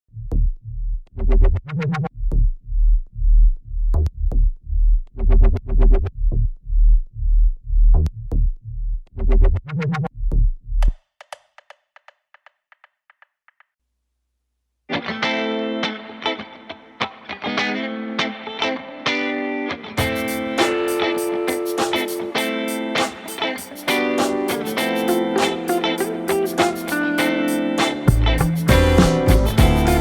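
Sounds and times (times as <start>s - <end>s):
electronic music with bass drum: 20.0s - 30.0s.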